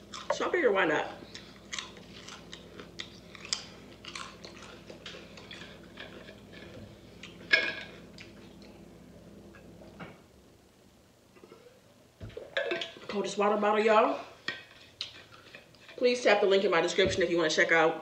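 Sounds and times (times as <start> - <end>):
crunchy chewing of chips: 0.0 - 0.4, 1.1 - 8.8.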